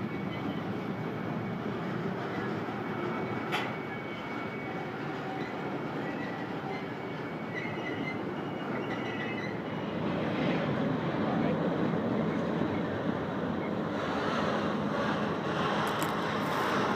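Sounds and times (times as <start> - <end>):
high wheel squeals: 0.0 - 10.2
freight train rolling past: 0.0 - 16.9.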